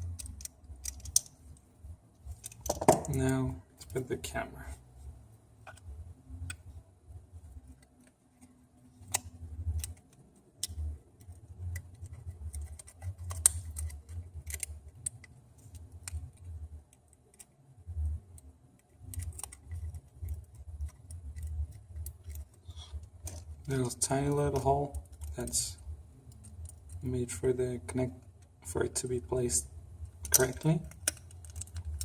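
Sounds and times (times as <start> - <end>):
small tools clicking and tapping: 30.2 - 32.0.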